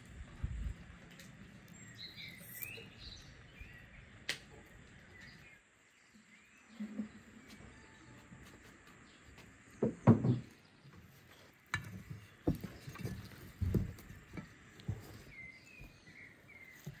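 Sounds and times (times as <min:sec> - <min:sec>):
small birds chirping: 0:00.0 - 0:17.0
soft knocks: 0:09.8 - 0:10.5.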